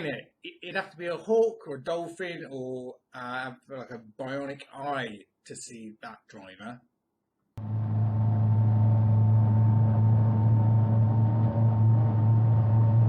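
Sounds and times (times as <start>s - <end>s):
low engine drone: 7.6s - 13.0s.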